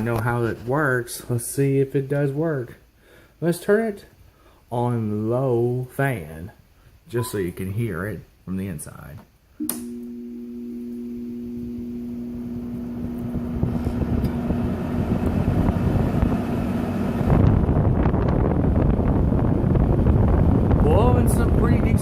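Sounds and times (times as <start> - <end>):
air conditioner motor hum: 9.6 - 22.0.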